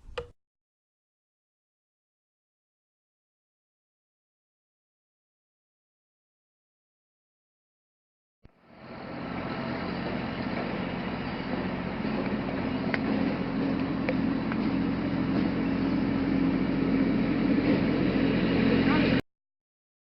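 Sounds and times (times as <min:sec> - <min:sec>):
motor humming: 0:08.5 - 0:19.2.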